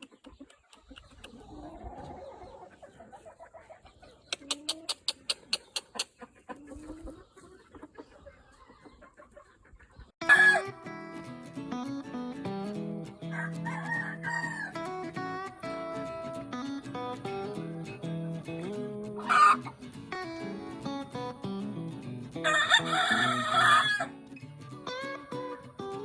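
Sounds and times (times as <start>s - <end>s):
chickens clucking: 0.0s - 10.7s, 13.2s - 16.5s, 18.6s - 21.4s, 22.4s - 26.0s
background guitar music: 10.2s - 26.0s
rooster call: 22.4s - 24.1s.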